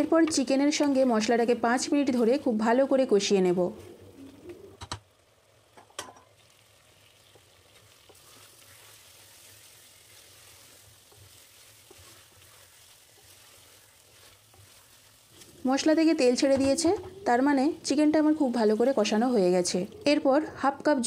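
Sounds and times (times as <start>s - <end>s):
wooden spatula stirring: 0.0s - 3.1s, 7.2s - 20.2s
chicken sizzling in a pot: 0.0s - 20.5s.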